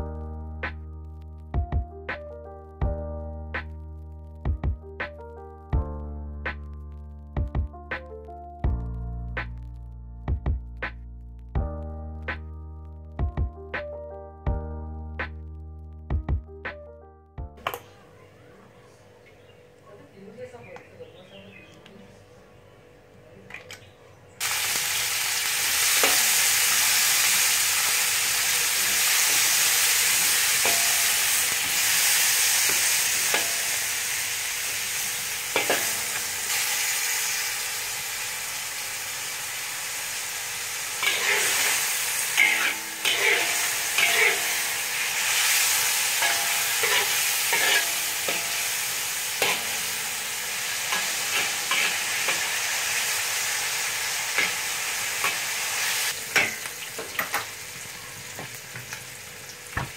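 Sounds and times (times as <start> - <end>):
vegetables sizzling in hot oil: 24.4 - 59.9
spatula scraping and clacking on wok: 29.1 - 33.8, 35.5 - 36.4, 41.0 - 52.7, 54.3 - 55.5.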